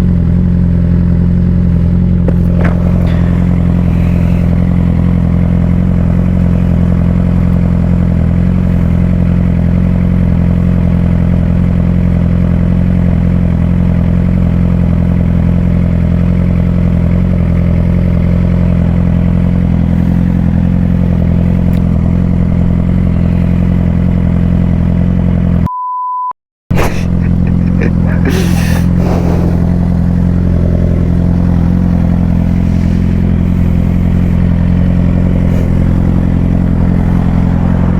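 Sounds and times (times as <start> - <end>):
motorcycle engine idling: 0.0 - 25.7, 27.1 - 37.9
short beep tone: 25.7 - 26.4.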